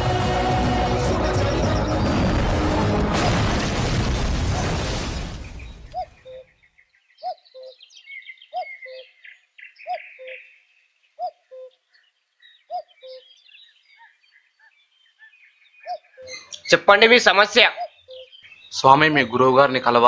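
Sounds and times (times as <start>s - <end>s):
small birds chirping: 5.1s - 20.0s.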